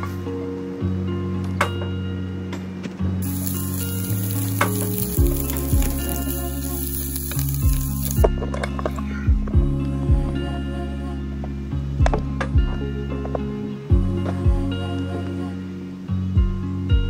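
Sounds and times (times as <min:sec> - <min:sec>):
lo-fi music with steady beat: 0:00.0 - 0:17.0
food sizzling in a pan: 0:03.2 - 0:08.2.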